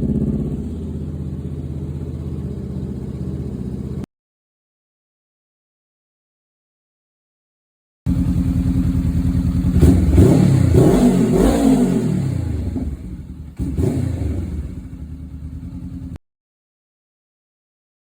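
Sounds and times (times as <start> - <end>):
motorcycle engine idling and revving: 0.0 - 4.1, 8.1 - 16.2.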